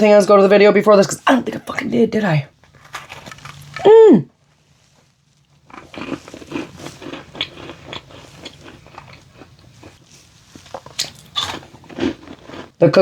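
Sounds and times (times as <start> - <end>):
person crunching a cookie: 2.6 - 3.9, 4.5 - 12.8.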